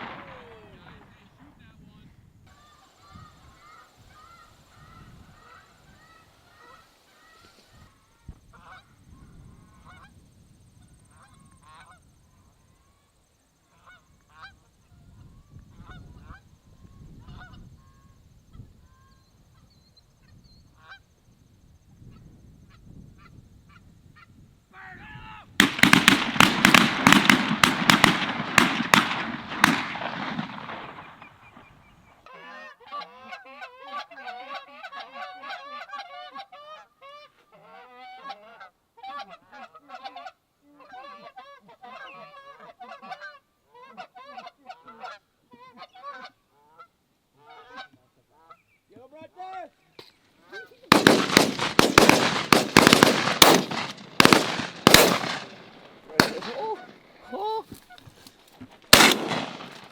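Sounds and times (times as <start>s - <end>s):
geese honking: 32.2s - 48.7s, 50.4s - 58.3s.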